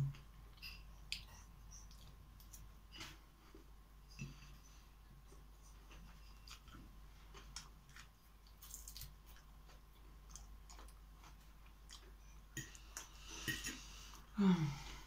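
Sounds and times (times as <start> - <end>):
person chewing soft food: 0.0 - 14.4.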